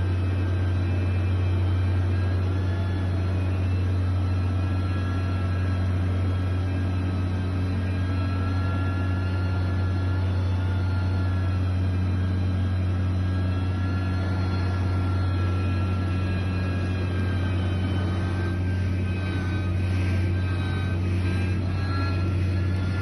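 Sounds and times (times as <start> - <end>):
heavy machinery engine droning: 0.0 - 23.0.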